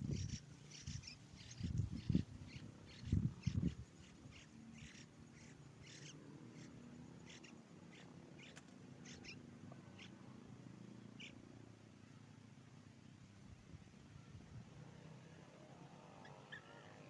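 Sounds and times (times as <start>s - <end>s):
bird chirps: 0.0s - 10.2s, 11.0s - 11.4s, 16.1s - 17.0s.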